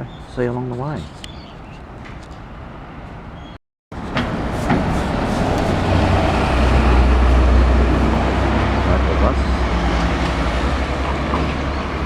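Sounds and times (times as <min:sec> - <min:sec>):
street traffic: 0:00.0 - 0:12.0
bus engine rumble: 0:04.0 - 0:12.0.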